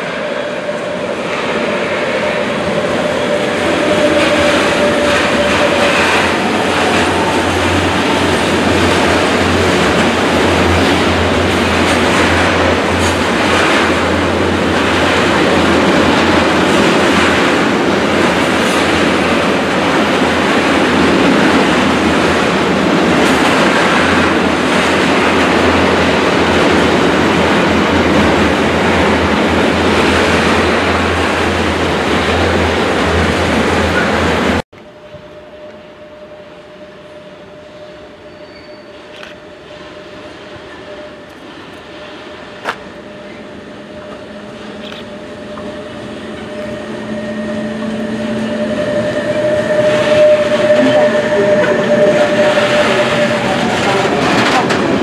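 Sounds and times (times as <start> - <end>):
freight train wheels rumbling: 0.0 - 55.0
locomotive steady tone: 33.2 - 55.0.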